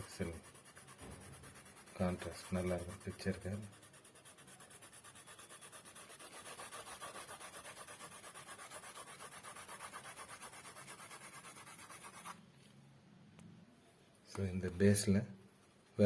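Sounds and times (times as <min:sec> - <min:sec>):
colour pencil shading on paper: 0:00.0 - 0:12.4.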